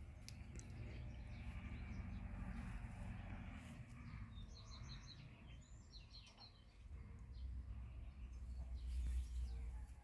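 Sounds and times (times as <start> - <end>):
small bird chirping: 0.0 - 10.0.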